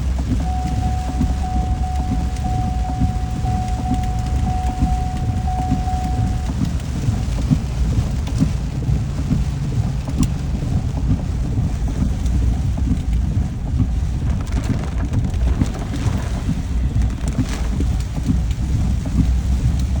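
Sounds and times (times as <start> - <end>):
constant low rumble: 0.0 - 20.0
heavy rain falling: 0.0 - 20.0
faint steady tone: 0.4 - 6.8.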